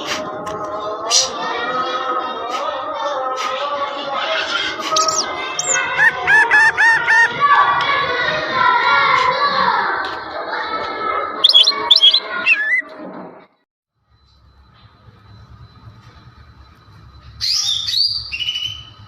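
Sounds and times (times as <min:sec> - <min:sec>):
bird singing chattering song: 0:04.9 - 0:07.3, 0:11.4 - 0:12.8.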